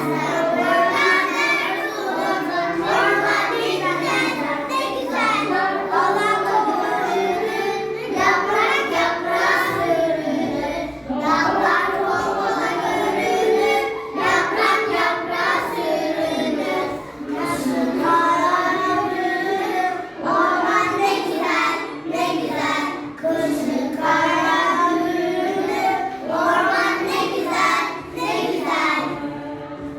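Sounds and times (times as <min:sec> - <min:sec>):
children singing together: 0:00.0 - 0:29.9.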